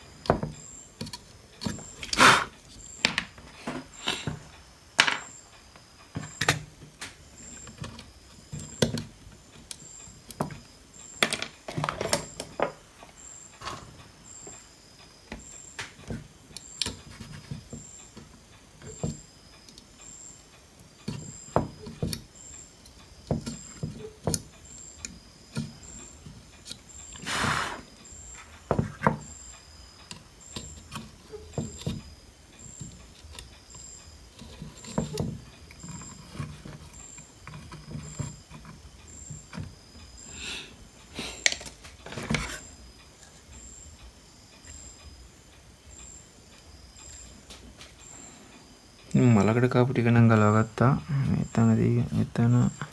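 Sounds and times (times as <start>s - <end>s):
hand tools clicking on circuit board: 15.8s - 27.2s.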